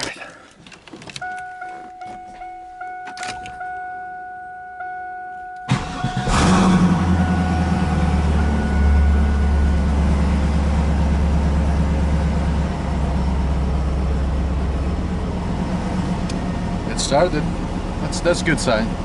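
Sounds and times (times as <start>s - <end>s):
car engine idling: 1.4s - 19.0s
car engine cranking: 5.3s - 19.0s.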